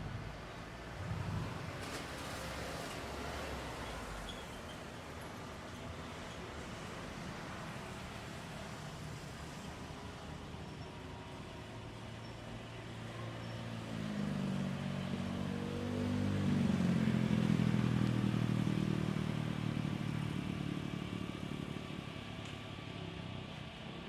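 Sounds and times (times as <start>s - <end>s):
engine passing by: 0.8s - 4.3s, 12.8s - 23.9s.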